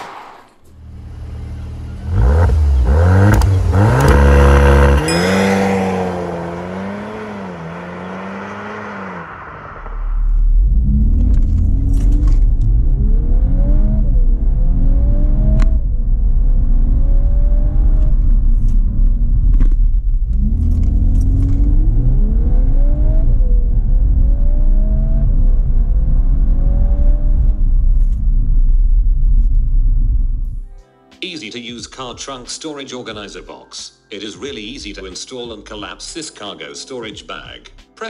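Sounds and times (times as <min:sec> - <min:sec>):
car engine accelerating through gears: 0:00.8 - 0:28.7.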